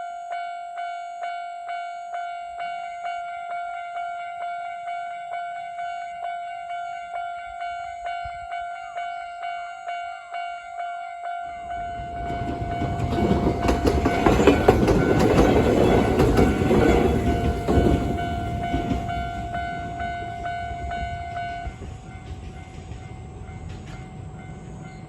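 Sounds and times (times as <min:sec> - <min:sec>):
crossing warning bell ringing: 0:00.0 - 0:25.0
electric train passing: 0:00.0 - 0:25.0
wheels clicking over rail joints: 0:12.0 - 0:25.0.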